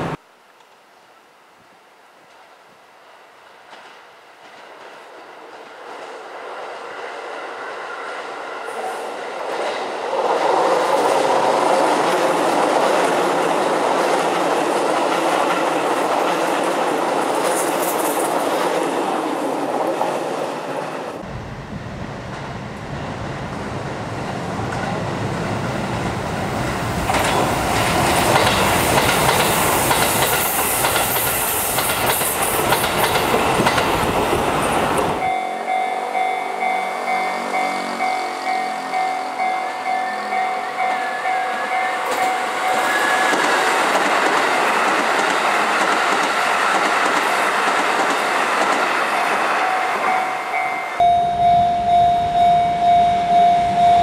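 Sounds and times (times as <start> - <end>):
wind rumbling on microphone: 21.2 - 29.8
train wheels clattering over rail joints: 27.1 - 34.4
ringing bell: 35.2 - 43.2, 49.6 - 54.0.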